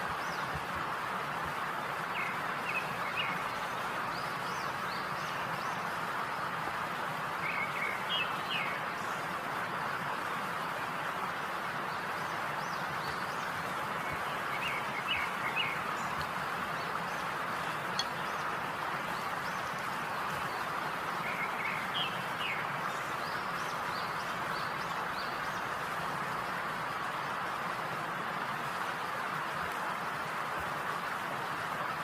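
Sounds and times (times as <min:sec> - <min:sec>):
steady hiss: 0:00.0 - 0:32.0
birds chirping: 0:11.7 - 0:25.9.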